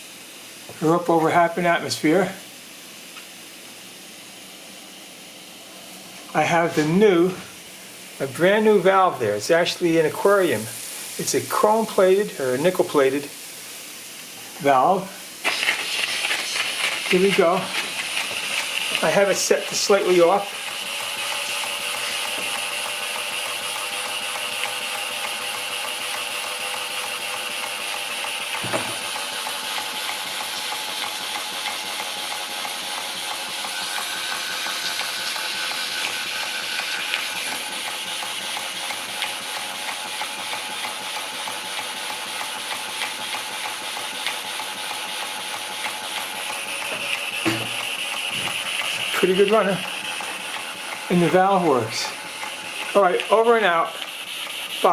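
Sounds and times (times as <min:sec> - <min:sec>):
steam hissing: 0:00.0 - 0:54.9
model steam engine running: 0:14.7 - 0:54.9.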